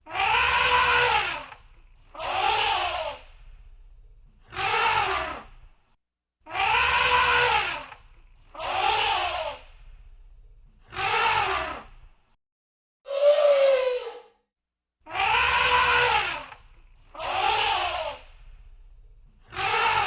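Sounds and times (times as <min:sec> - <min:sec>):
elephant trumpeting: 0:00.1 - 0:01.5, 0:06.6 - 0:07.8, 0:15.2 - 0:16.5.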